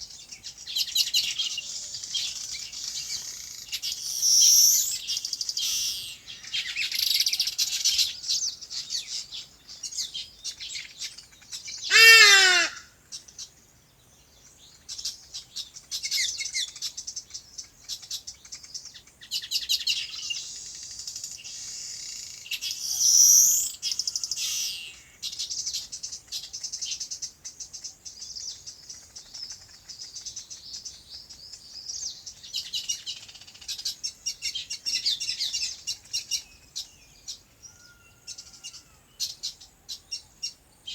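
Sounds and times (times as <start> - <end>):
small birds chirping: 0.0 - 40.9
loud low animal call: 11.9 - 12.9.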